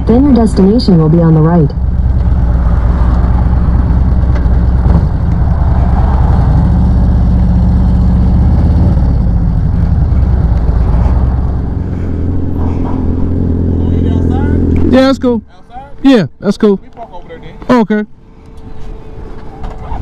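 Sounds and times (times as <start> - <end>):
motorcycle engine running: 0.0 - 15.5.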